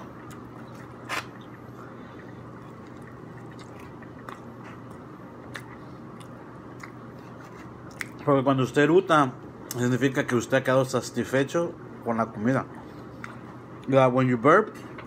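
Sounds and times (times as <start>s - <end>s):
person biting and chewing: 0.1s - 1.8s, 2.4s - 8.2s.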